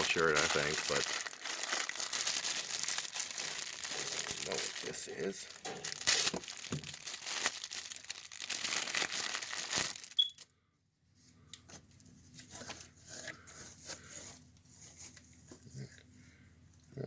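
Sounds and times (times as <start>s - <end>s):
packaging crinkling and tearing: 0.0s - 10.4s.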